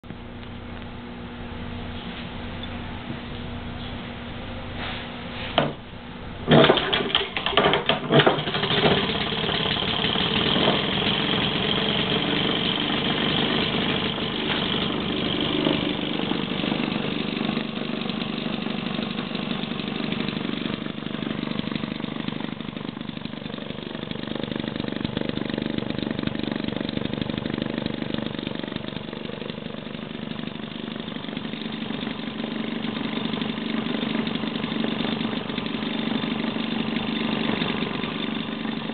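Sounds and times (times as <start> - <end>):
click: 2.6 - 4.0
engine firing with loud pops: 6.4 - 16.4.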